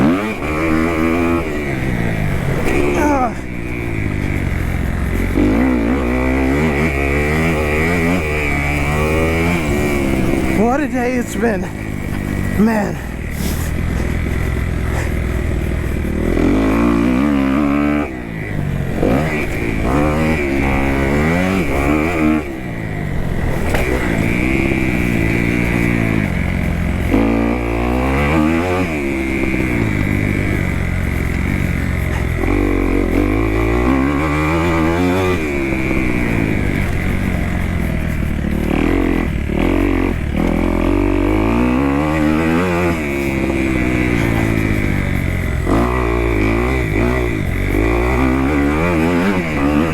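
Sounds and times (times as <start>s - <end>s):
motocross bike engine revving: 0.0s - 49.9s.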